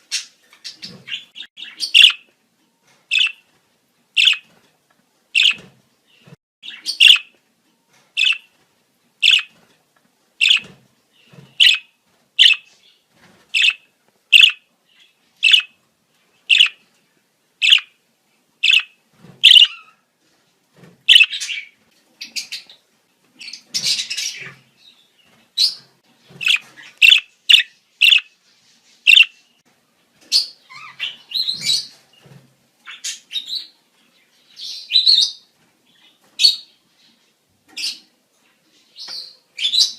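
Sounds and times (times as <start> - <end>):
budgerigars chirping and warbling: 0.1 - 2.3, 3.1 - 3.4, 4.2 - 4.5, 5.4 - 7.3, 8.2 - 8.5, 9.2 - 9.6, 10.4 - 12.7, 13.6 - 15.8, 16.5 - 16.8, 17.6 - 17.9, 18.6 - 20.0, 21.1 - 22.8, 23.4 - 24.7, 25.6 - 28.4, 29.1 - 29.4, 30.3 - 32.0.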